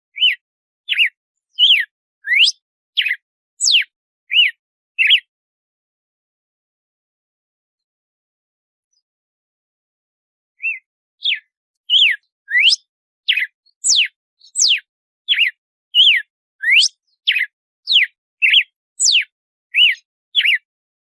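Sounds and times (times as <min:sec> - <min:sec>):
bird singing whistled notes: 0:00.1 - 0:05.3, 0:10.6 - 0:20.7.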